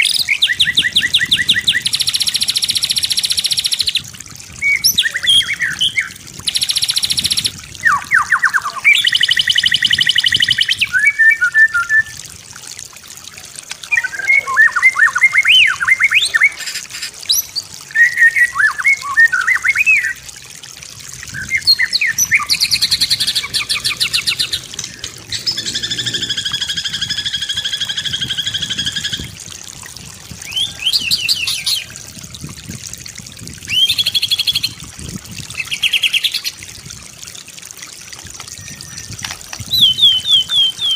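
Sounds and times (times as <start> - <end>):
songbird singing varied song: 4.7 - 12.1, 21.3 - 29.4, 30.4 - 32.0, 38.5 - 40.9.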